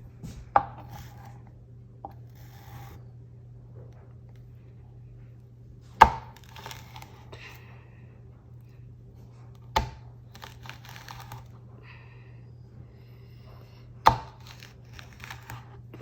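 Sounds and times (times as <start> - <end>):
knife crunching through cactus: 6.0 - 7.6, 9.6 - 11.6, 14.1 - 16.0.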